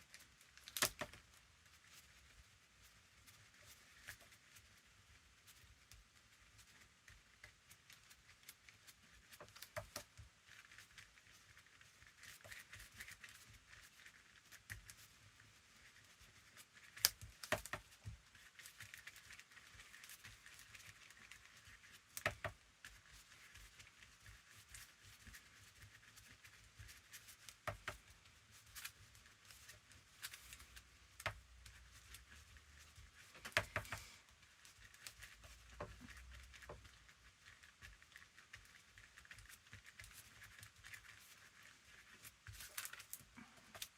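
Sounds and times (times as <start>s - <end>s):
glue scraping over paper: 3.0s - 43.9s
small taps and clicks: 9.2s - 10.3s, 17.0s - 18.2s, 22.1s - 22.6s, 26.8s - 28.1s, 33.2s - 34.1s
paper rustling: 9.3s - 43.9s.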